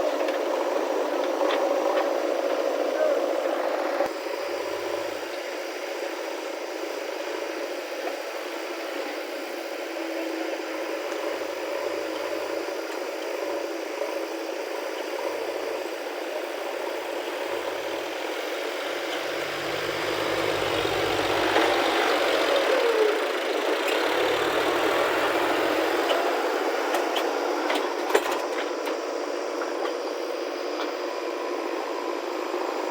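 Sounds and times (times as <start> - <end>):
diesel machinery engine running: 0.0 - 5.3, 15.4 - 32.9.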